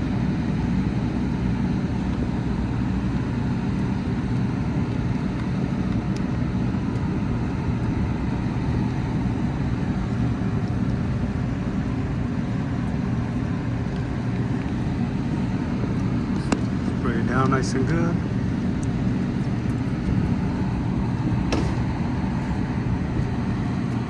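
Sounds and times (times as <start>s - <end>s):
faint machinery hum: 0.0s - 24.0s.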